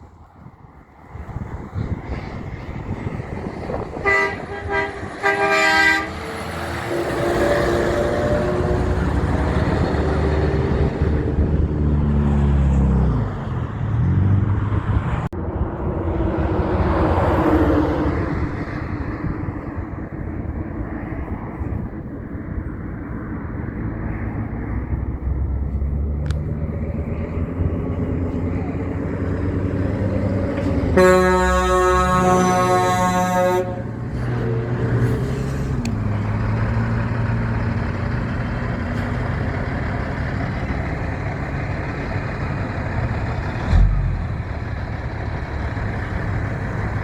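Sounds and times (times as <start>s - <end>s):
heavy vehicles passing: 0.0s - 47.0s
traffic rumble: 0.0s - 47.0s
loud horn blast: 3.9s - 11.2s, 29.6s - 35.9s.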